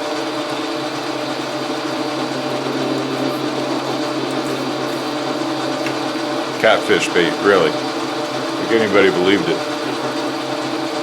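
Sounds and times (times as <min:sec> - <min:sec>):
metal lathe running: 0:00.0 - 0:11.0.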